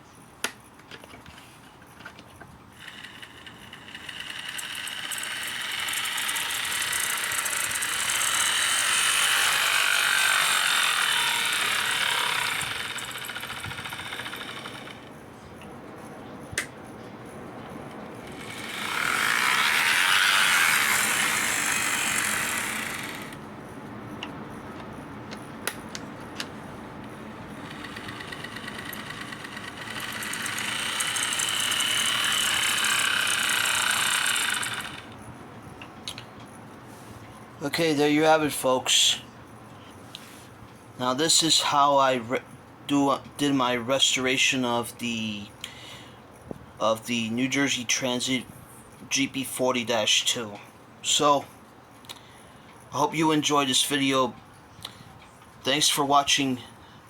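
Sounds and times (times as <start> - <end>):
model locomotive motor whirring: 2.7 - 15.1, 18.2 - 23.5, 27.0 - 35.3.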